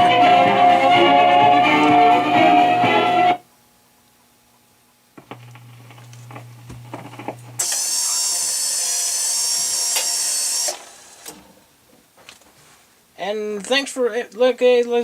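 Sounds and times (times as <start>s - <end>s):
jukebox mechanism whirring and clattering: 7.0s - 11.5s.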